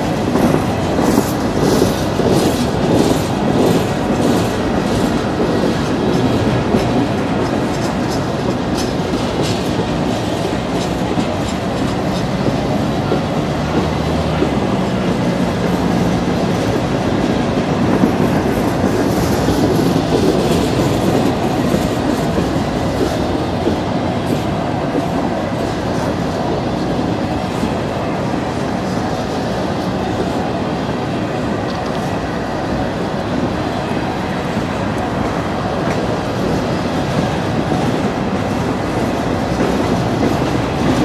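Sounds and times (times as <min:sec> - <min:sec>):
train wheels rumbling on rail: 0:00.0 - 0:41.0.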